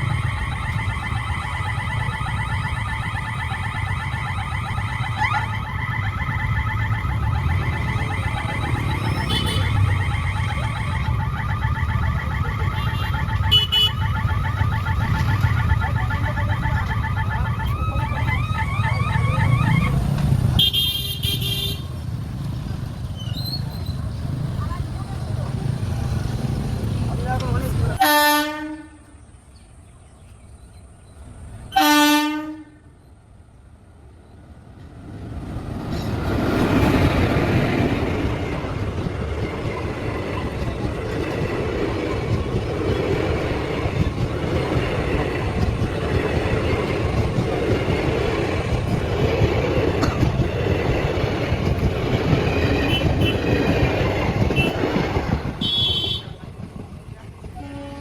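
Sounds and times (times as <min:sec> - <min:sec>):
passing train rumble with rail clatter: 0:00.0 - 0:58.0
train horn blast: 0:28.0 - 0:29.2, 0:31.7 - 0:32.9, 0:54.5 - 0:54.8, 0:55.6 - 0:56.4, 0:57.5 - 0:58.0.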